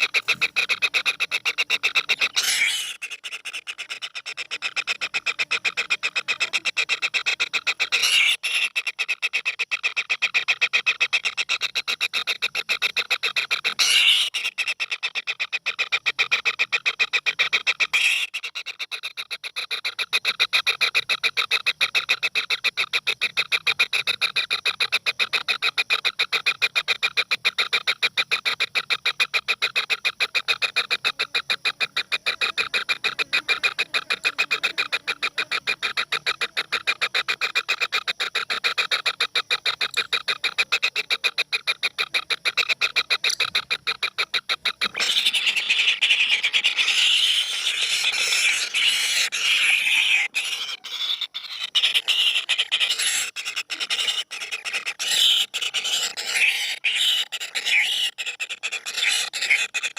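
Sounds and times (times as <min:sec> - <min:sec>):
animal calling in pulsing trill: 0:00.0 - 0:09.4, 0:13.6 - 0:14.9, 0:26.7 - 0:59.9.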